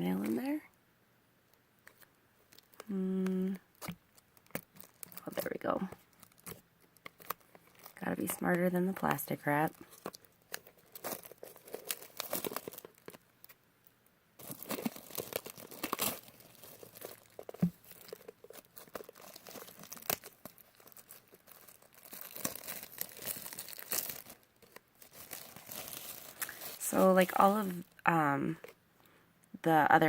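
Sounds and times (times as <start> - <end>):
plastic wrap tearing and crinkling: 3.7 - 13.6, 14.4 - 27.2.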